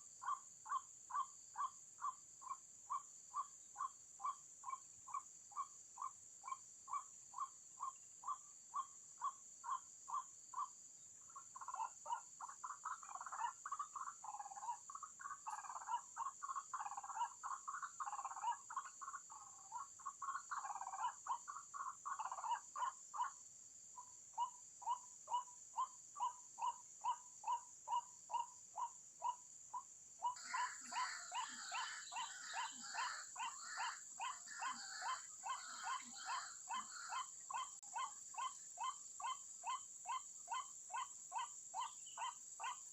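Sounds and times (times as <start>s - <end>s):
bird calling repeatedly: 24.0s - 42.9s.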